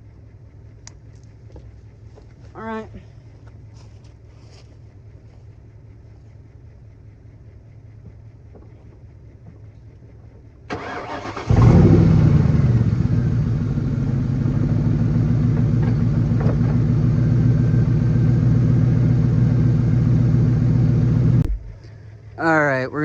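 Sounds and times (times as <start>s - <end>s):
starter cranking engine: 10.7s - 12.4s
car engine running loud: 10.7s - 22.6s.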